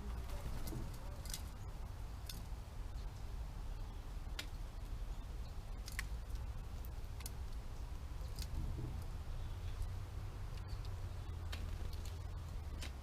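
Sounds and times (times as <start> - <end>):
wind rumbling on microphone: 4.2 - 13.0.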